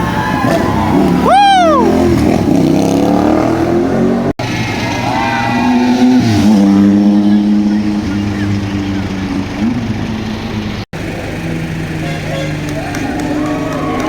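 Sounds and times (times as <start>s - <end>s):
siren whoop: 0.0s - 2.0s, 12.7s - 14.0s
vehicle engines running: 0.0s - 14.0s.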